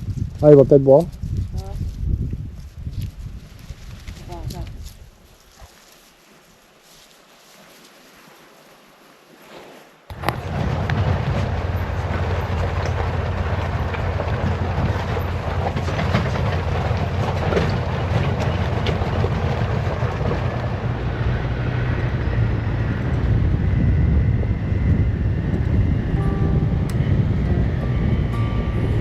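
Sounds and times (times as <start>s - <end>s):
rattles and knocks: 10.1s - 20.6s
utility vehicle engine drone: 10.1s - 29.0s.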